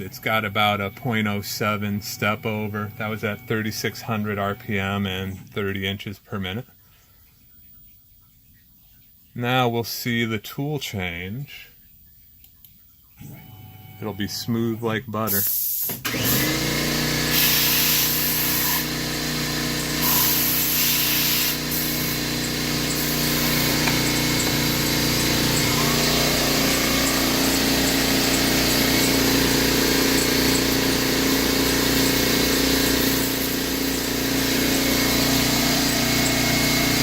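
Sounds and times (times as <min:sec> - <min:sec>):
machine humming: 0:00.0 - 0:05.9, 0:16.0 - 0:37.0
short air hisses: 0:15.4 - 0:16.0.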